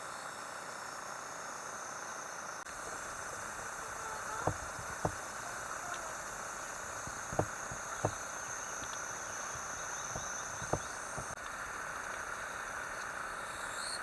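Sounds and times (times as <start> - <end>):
insects chorus: 0.0 - 14.0
sharp knocks: 4.4 - 5.3, 7.0 - 11.4.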